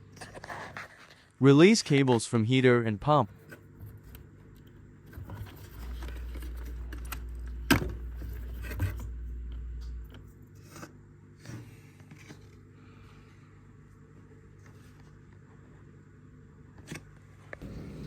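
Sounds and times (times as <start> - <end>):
low steady rumble: 17.6 - 18.0.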